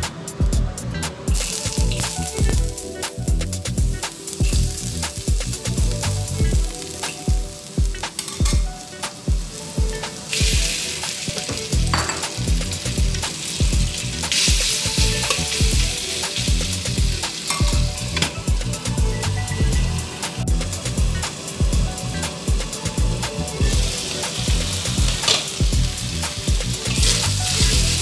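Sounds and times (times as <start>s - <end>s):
background music with a beat: 0.0s - 28.0s
loud hissing sizzle: 0.0s - 28.0s
oil sizzling in a wok: 1.2s - 28.0s.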